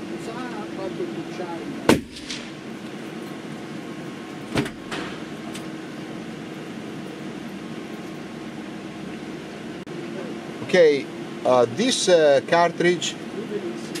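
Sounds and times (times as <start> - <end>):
steady background hum: 0.0 - 14.0
rifle shot: 1.9 - 2.6.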